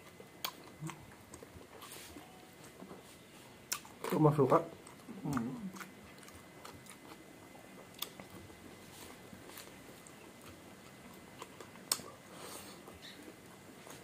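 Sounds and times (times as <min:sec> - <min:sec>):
chewing and mouth sounds: 0:00.0 - 0:03.0, 0:03.6 - 0:14.0.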